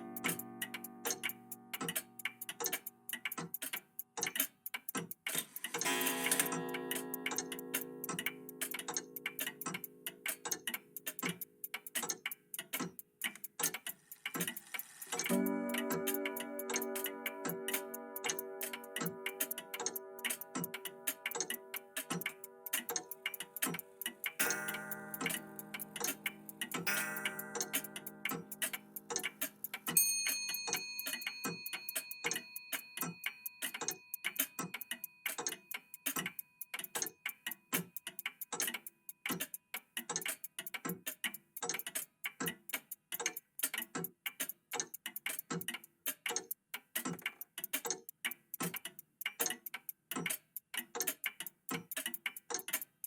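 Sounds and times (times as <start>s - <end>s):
bell-like clock chime: 0.0s - 1.8s, 5.8s - 10.0s, 14.9s - 29.0s, 29.9s - 36.8s
mechanical clocks ticking: 0.0s - 53.0s.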